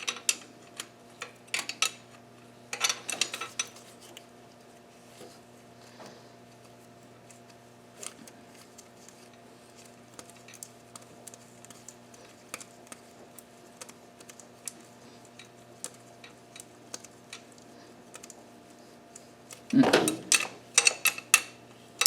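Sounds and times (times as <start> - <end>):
hand tools clicking and tapping: 19.6 - 21.6.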